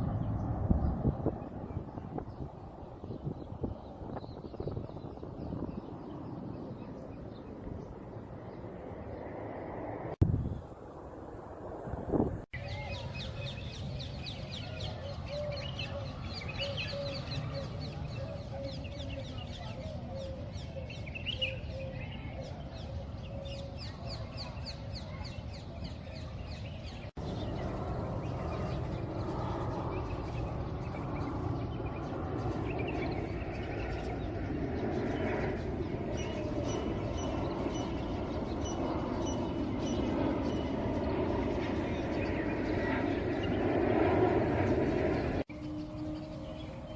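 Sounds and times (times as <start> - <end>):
wavering bird calls: 12.6 - 46.9.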